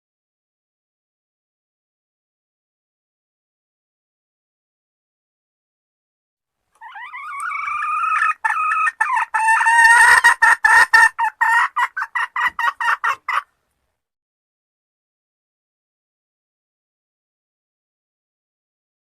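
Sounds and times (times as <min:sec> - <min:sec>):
jungle fowl hen call: 0:06.8 - 0:13.5.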